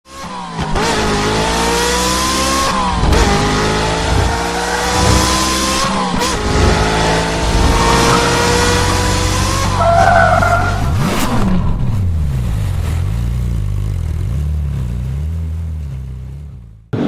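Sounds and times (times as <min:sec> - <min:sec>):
car engine accelerating: 0:00.1 - 0:17.0.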